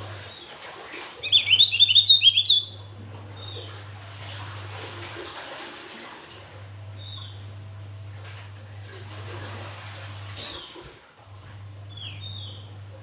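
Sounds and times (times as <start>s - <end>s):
songbird chirping: 1.2s - 3.6s
steady low hum: 1.2s - 5.3s, 6.3s - 13.0s.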